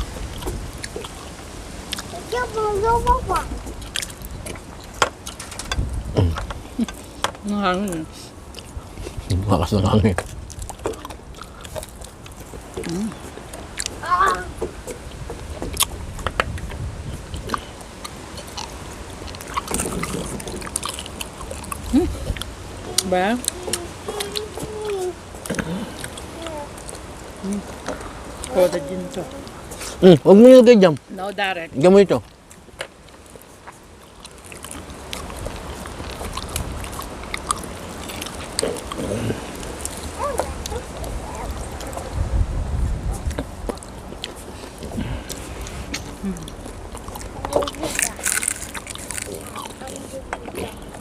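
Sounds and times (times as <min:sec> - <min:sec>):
wind rumble on microphone: 0:00.0 - 0:06.8, 0:08.3 - 0:23.9, 0:34.8 - 0:48.1
crunchy chewing of fried food: 0:00.0 - 0:30.2, 0:32.1 - 0:51.0.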